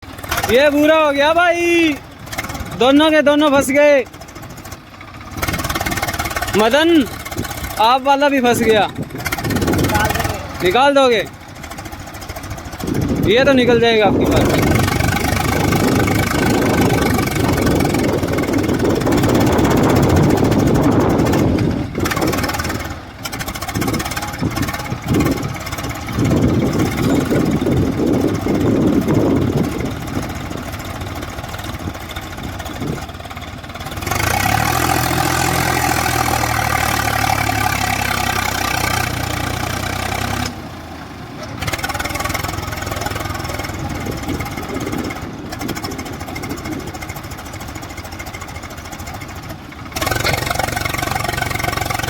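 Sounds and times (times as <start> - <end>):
tractor diesel engine revving: 0.0 - 52.0.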